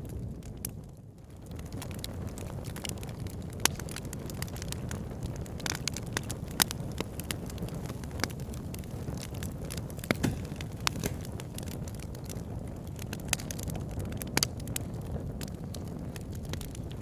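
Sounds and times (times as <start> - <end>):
fire flames rumbling: 0.0 - 17.0
wood fire crackling and popping: 0.0 - 17.0.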